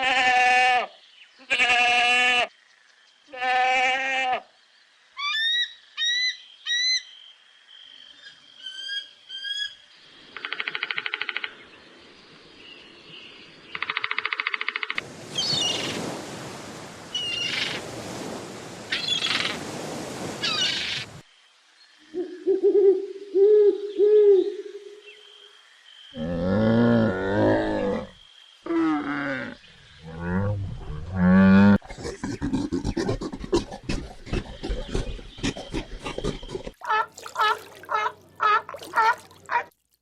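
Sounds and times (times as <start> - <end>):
deep drawn-out animal calls: 26.1 - 39.7.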